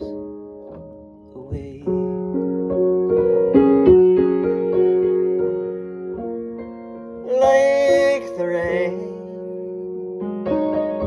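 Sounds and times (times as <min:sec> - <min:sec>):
piano chords: 0:00.0 - 0:11.0
person singing: 0:01.3 - 0:02.4, 0:07.2 - 0:09.4.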